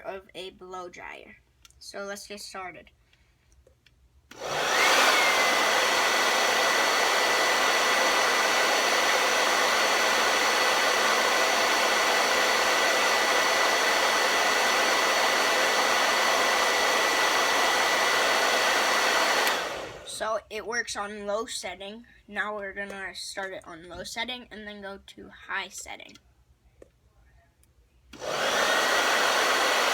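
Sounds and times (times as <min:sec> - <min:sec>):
blow dryer running: 0:04.3 - 0:20.3, 0:28.1 - 0:29.9.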